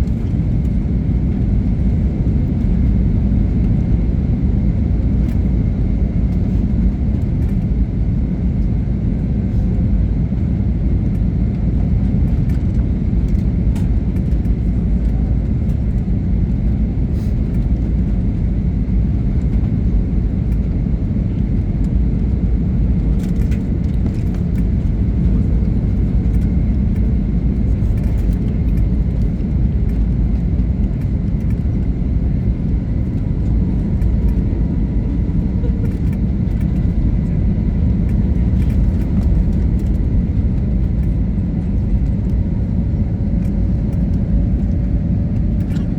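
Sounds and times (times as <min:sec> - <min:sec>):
jet engine rumble in cabin: 0:00.0 - 0:45.9.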